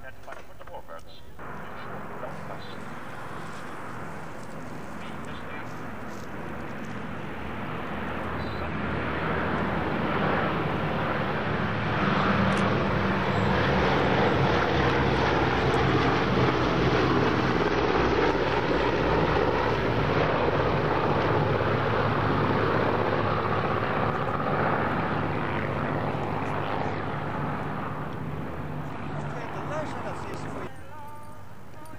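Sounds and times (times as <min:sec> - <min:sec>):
propeller plane engines droning: 0:00.0 - 0:31.9.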